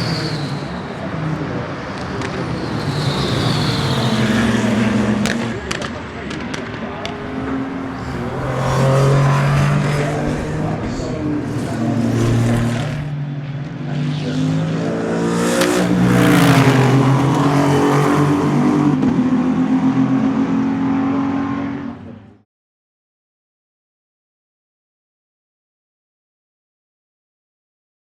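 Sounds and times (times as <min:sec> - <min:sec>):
race car engines running hard: 0:00.0 - 0:22.4
race car passing loudly: 0:00.0 - 0:22.4.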